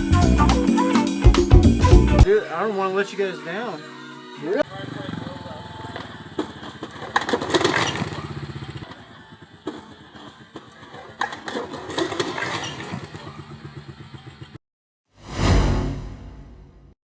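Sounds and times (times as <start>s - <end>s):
small off-road vehicle engine revving: 4.7s - 14.6s.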